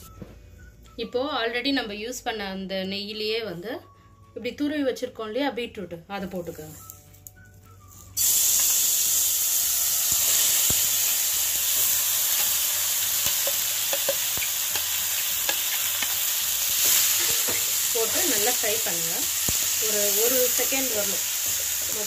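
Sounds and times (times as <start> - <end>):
food sizzling in a pan: 7.9 - 22.0
spatula tapping and scraping: 13.2 - 18.4.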